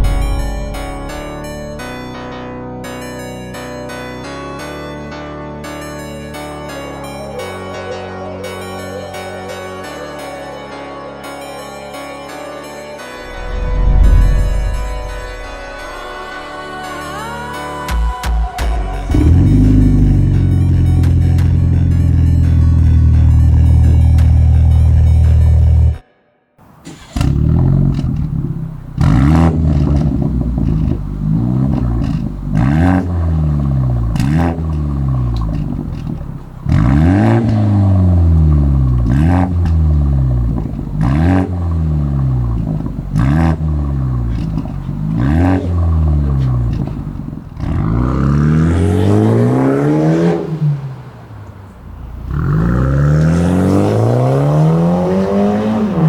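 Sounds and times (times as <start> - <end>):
car engine revving: 0.0 - 3.0, 13.2 - 16.7, 19.1 - 26.0, 26.8 - 56.0.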